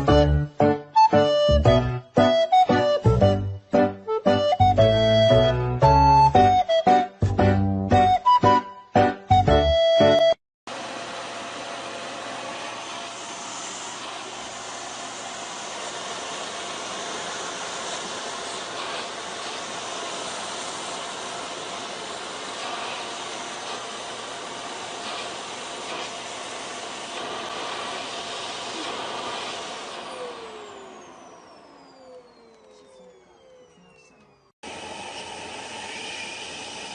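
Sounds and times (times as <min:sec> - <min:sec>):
electric appliance whirring: 0:10.7 - 0:36.9.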